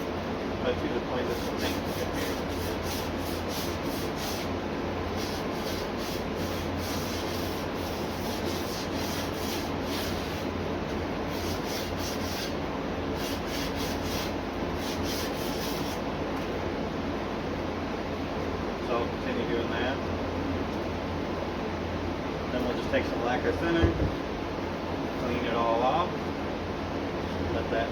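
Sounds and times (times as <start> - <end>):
sandpaper rasping on metal: 1.2 - 10.5, 11.3 - 12.6, 13.2 - 16.0.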